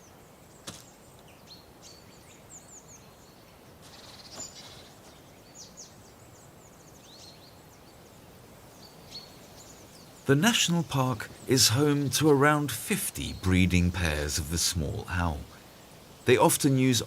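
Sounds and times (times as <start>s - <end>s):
faint high bird chirps: 0.0s - 12.2s
quiet forest background: 0.0s - 17.0s.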